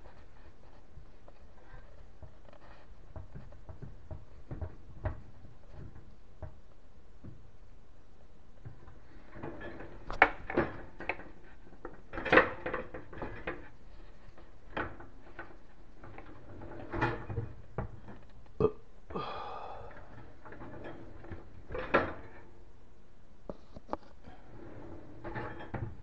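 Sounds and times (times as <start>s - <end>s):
cabinet hardware knocks and clicks: 2.2s - 7.5s.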